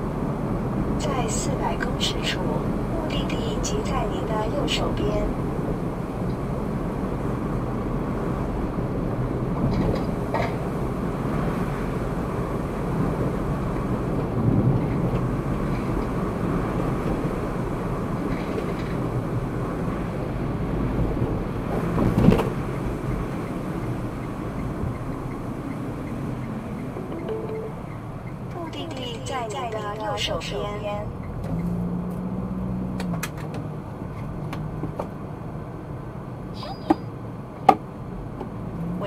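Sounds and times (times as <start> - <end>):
car cabin road and engine noise: 0.0 - 39.0.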